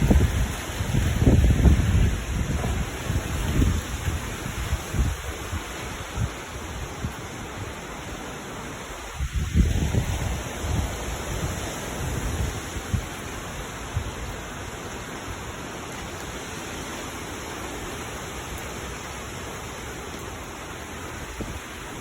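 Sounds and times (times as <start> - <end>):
wind buffeting microphone: 0.0 - 8.0, 8.8 - 14.8, 21.2 - 22.0
heavy rain hissing: 0.0 - 22.0.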